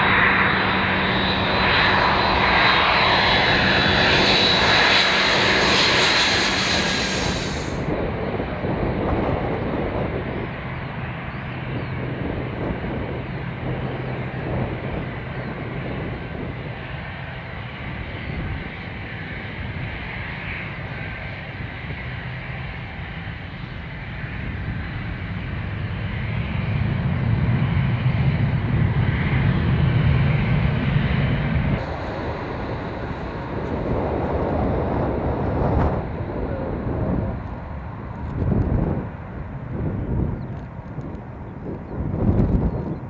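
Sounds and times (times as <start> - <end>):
jet engines rumbling: 0.0 - 43.0
strong wind: 0.0 - 43.0.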